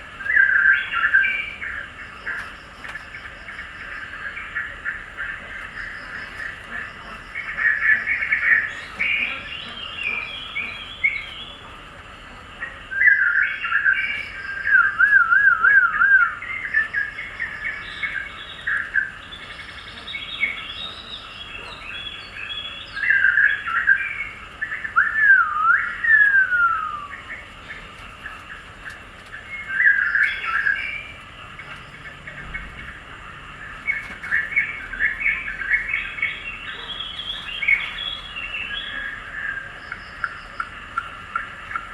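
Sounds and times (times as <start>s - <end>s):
songbirds chirping and warbling: 0.0s - 41.9s
bird whistling: 13.0s - 17.6s, 23.0s - 27.3s.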